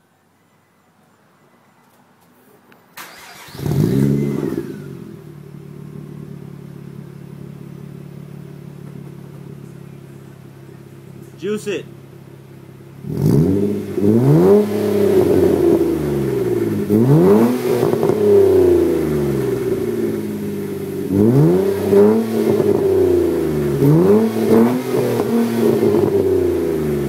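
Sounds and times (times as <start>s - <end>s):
car engine revving: 3.0s - 27.0s.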